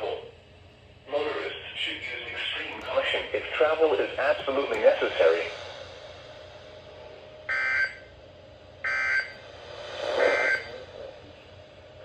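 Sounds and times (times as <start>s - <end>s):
harsh digital buzzes: 10.2s - 10.7s.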